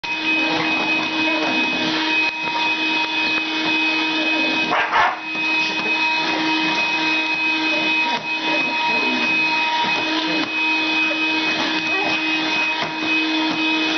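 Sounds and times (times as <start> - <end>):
vacuum cleaner whine: 0.0 - 13.9
dog barking and yipping: 4.7 - 5.3.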